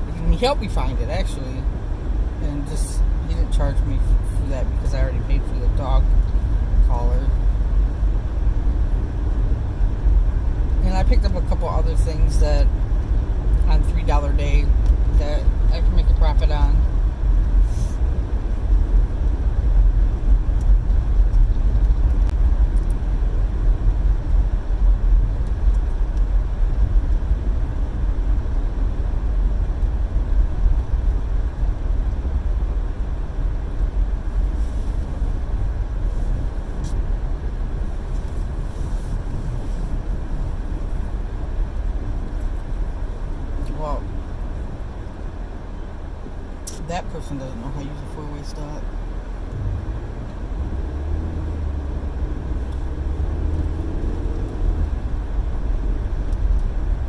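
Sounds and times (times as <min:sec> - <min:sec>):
car cabin engine and road noise: 0:00.0 - 0:57.0.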